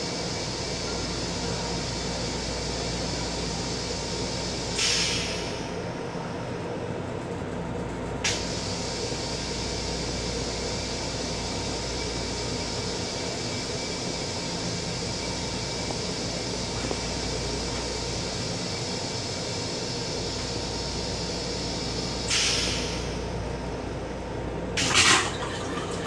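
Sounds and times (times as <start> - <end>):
railcar hum: 0.0 - 26.0
loud hiss: 21.2 - 23.2.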